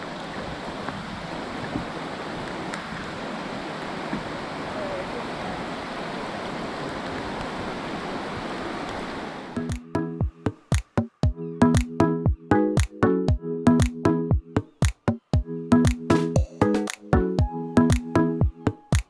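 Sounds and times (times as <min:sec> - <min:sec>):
water rushing: 0:00.0 - 0:11.0.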